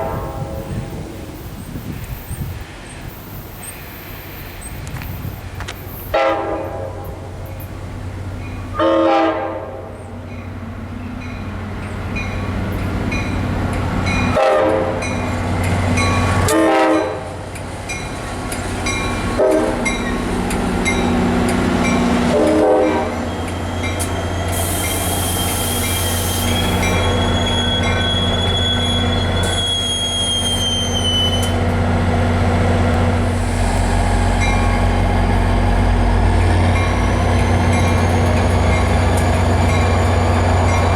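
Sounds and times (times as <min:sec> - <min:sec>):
train horn blasts: 0:00.0 - 0:01.0, 0:06.1 - 0:07.3, 0:08.7 - 0:10.1, 0:14.3 - 0:15.2, 0:16.4 - 0:17.4, 0:19.3 - 0:20.0, 0:22.3 - 0:23.3
train rumble: 0:00.0 - 0:40.9
train wheel squeal: 0:01.2 - 0:04.9, 0:17.9 - 0:31.8, 0:36.3 - 0:40.9
crossing bell ringing: 0:17.9 - 0:22.2, 0:22.8 - 0:25.0, 0:26.6 - 0:30.9, 0:34.4 - 0:35.0, 0:36.4 - 0:40.9.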